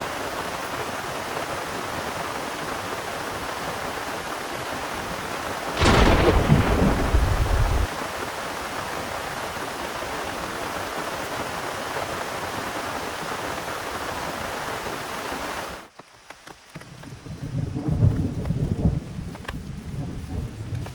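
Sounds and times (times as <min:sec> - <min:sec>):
heavy rain: 0:00.0 - 0:15.9
thunderclap and rumble: 0:05.8 - 0:07.9, 0:17.2 - 0:20.9.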